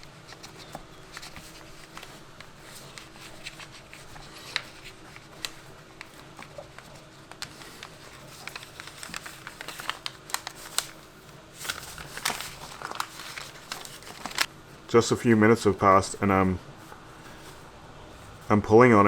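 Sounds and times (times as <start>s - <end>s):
faint steady hum: 0.0s - 19.0s
hands handling a glove: 0.4s - 11.0s, 11.6s - 14.5s.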